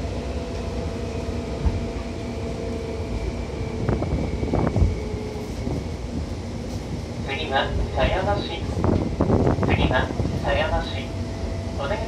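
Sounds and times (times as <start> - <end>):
train whining tones: 0.0 - 6.9
train wheels rumbling on rail: 0.0 - 12.0.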